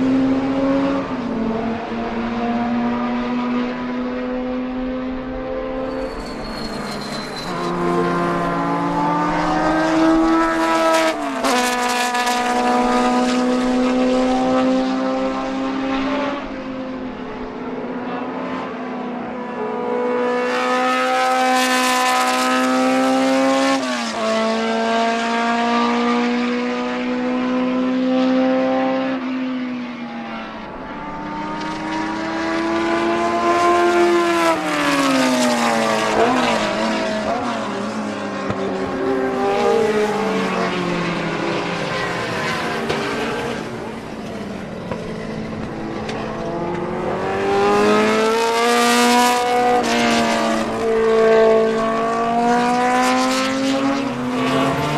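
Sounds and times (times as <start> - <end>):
racing engine revving: 44.9 - 54.9.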